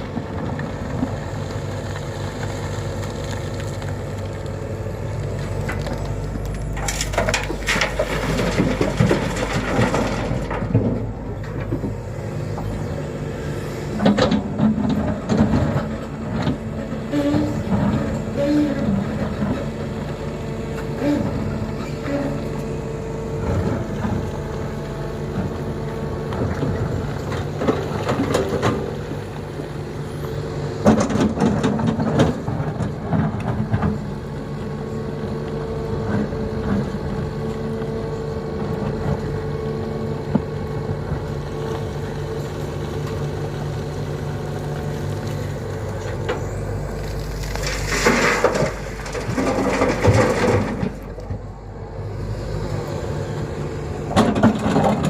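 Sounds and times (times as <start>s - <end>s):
excavator diesel engine running: 0.0s - 55.0s
loads crunching into truck bed: 47.3s - 51.4s.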